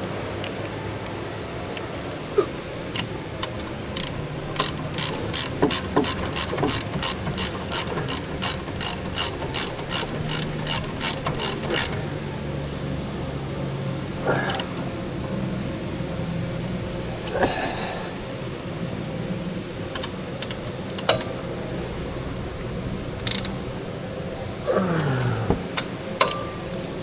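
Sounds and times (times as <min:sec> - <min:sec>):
ratchet wrench clicking: 0:02.9 - 0:12.7, 0:14.2 - 0:15.0, 0:19.9 - 0:22.0, 0:23.1 - 0:23.7, 0:25.8 - 0:26.9.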